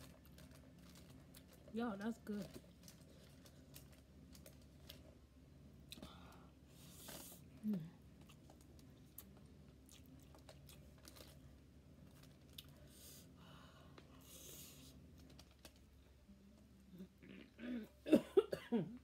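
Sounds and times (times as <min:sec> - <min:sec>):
faint chewing: 0:05.8 - 0:17.6.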